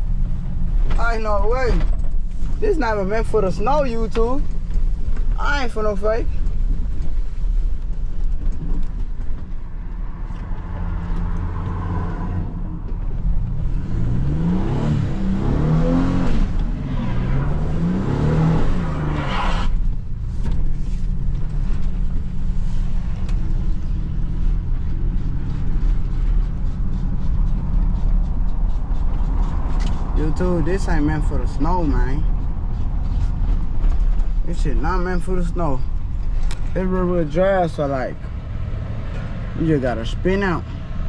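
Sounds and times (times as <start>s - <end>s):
steady low rumble: 0.0s - 41.0s
car engine revving: 9.8s - 41.0s.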